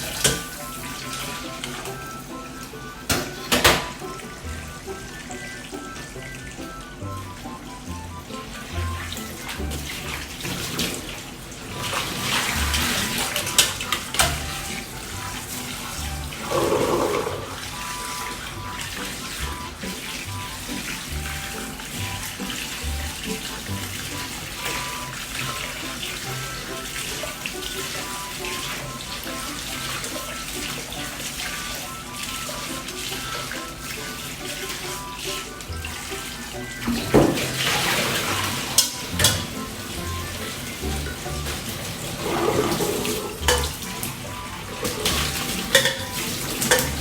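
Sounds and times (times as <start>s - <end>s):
background music with beat: 0.0s - 10.8s
water running and splashing: 0.0s - 47.0s.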